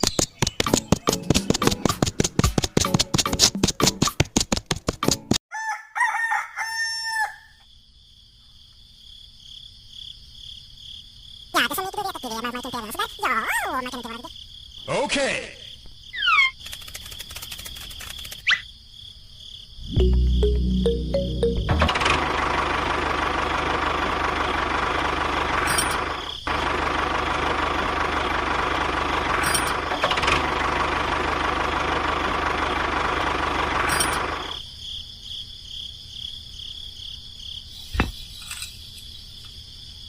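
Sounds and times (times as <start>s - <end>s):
small motor buzzing rattle: 16.6s - 18.5s.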